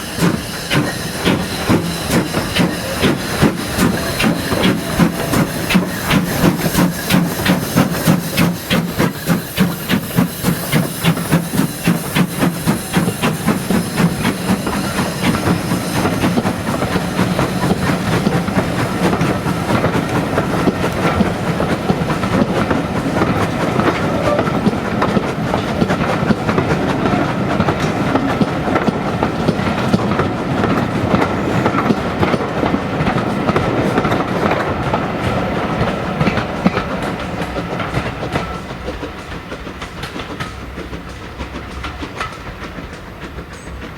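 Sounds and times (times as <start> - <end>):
train rumbling and rattling past: 0.0 - 43.9.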